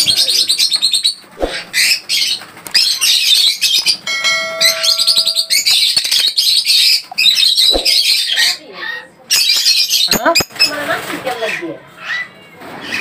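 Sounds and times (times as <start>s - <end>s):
caged birds chirping: 0.0s - 13.0s
bell-like ringing tone: 4.1s - 6.1s.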